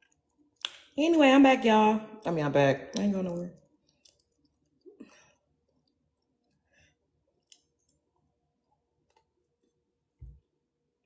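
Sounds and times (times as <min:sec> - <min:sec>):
person chewing food: 0:03.6 - 0:09.8.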